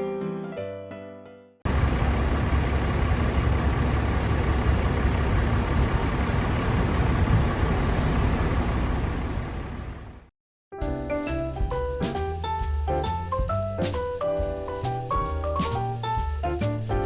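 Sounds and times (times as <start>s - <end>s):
vehicle engines rumbling: 1.7s - 10.3s.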